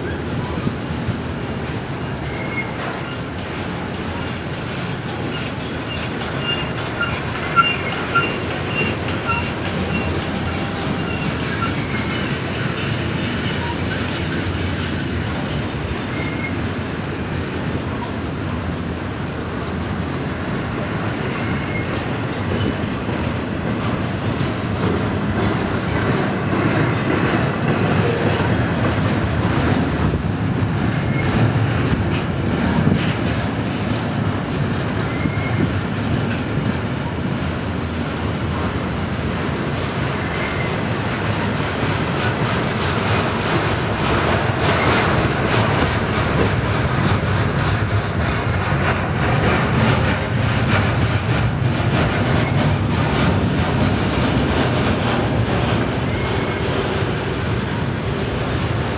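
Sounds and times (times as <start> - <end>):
freight train rolling past: 0.0 - 58.9
wheels clacking over rail joints: 0.0 - 58.9
faint high wheel squeal: 2.2 - 3.2, 5.3 - 12.6, 16.0 - 16.6, 21.3 - 22.0, 35.0 - 35.7, 56.0 - 56.8.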